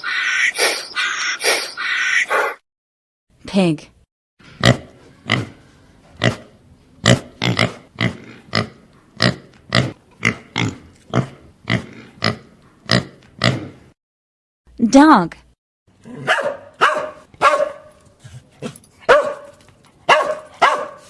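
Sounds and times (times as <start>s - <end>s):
pig grunting: 6.2s - 13.9s.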